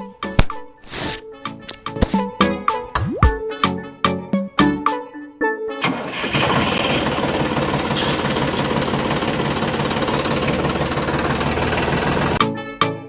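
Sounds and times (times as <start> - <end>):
background music: 0.0 - 6.4, 12.3 - 13.0
tractor engine running: 5.8 - 12.4.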